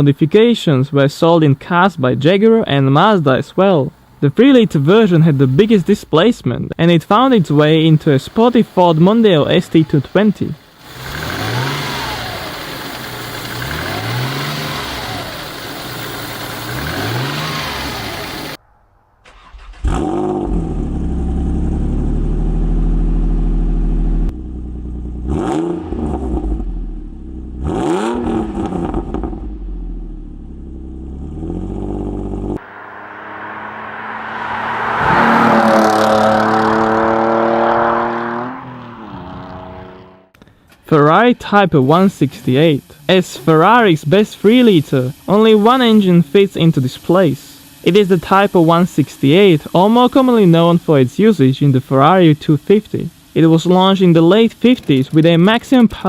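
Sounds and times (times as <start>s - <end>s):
engine idling: 7.4s - 18.6s
engine revving: 7.4s - 18.6s, 19.2s - 40.4s.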